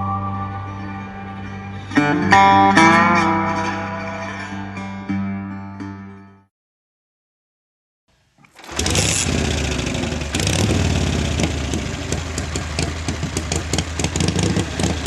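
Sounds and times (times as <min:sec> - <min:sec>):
motorcycle engine starting and running: 0:08.4 - 0:15.0.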